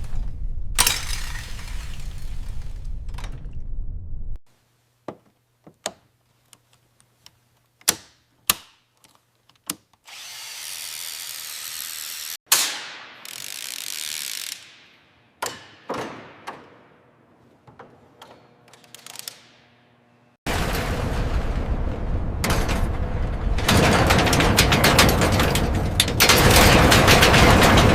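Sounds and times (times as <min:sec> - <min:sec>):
loud sharp bang: 0:20.5 - 0:24.5.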